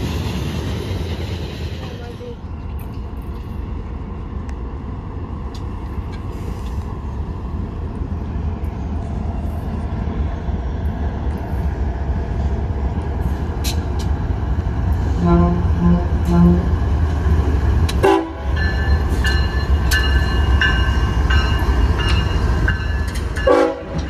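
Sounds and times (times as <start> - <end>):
diesel locomotives rumbling: 0.0 - 24.0
locomotive horn: 15.2 - 16.7, 18.0 - 18.6, 23.4 - 24.0.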